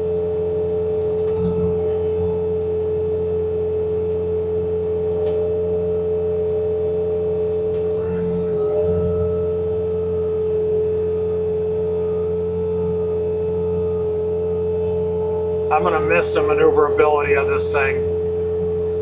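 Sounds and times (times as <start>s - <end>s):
low engine drone: 7.7s - 18.3s.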